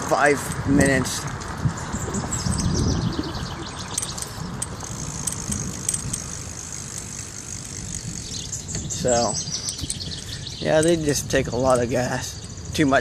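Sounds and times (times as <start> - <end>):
road noise: 0.0 - 13.0
wind rumbling over microphone: 0.0 - 13.0
small ticks: 3.6 - 11.0.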